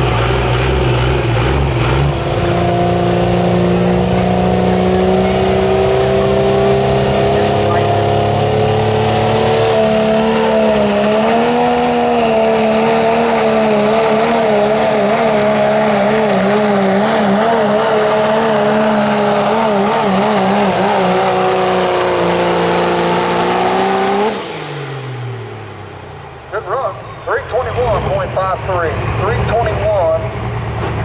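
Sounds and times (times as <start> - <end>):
diesel truck engine at full throttle: 0.0 - 31.0.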